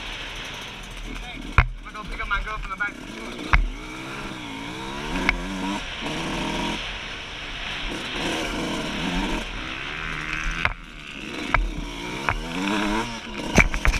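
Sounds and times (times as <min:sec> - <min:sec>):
two-stroke engine revving: 0:00.0 - 0:13.9
sharp knocks: 0:01.1 - 0:01.8, 0:03.4 - 0:03.9, 0:10.3 - 0:13.9
wind noise: 0:03.0 - 0:13.9.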